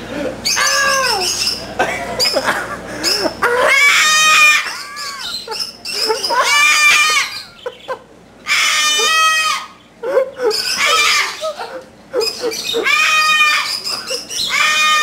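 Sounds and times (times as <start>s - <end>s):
parrot screeching: 0.4s - 1.6s, 3.0s - 7.6s, 8.4s - 9.8s, 10.4s - 15.0s.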